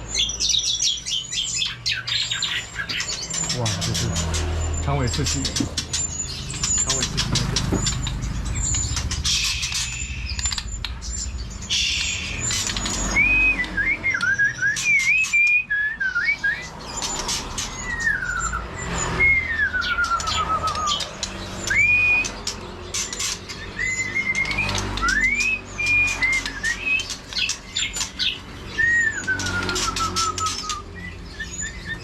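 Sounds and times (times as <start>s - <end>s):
caged birds chirping: 0.0s - 32.0s
bird singing whistled phrases: 8.6s - 17.2s, 17.8s - 22.4s, 23.5s - 32.0s.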